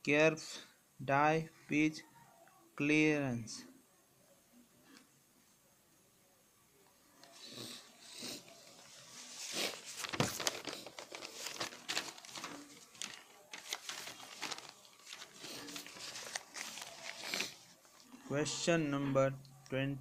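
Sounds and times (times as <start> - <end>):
paper crinkling and rustling: 8.5 - 18.1.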